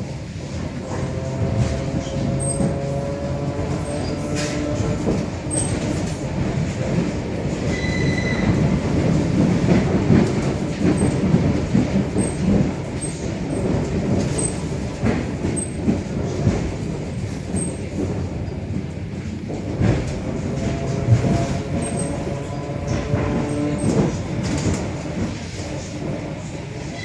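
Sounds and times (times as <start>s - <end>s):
train wheels rumbling: 0.0s - 27.0s
high wheel squeal: 7.7s - 8.6s.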